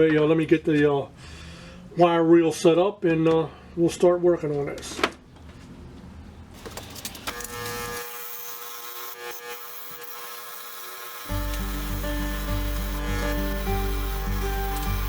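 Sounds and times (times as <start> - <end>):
wire wheel scrubbing rust off metal: 7.3 - 15.0.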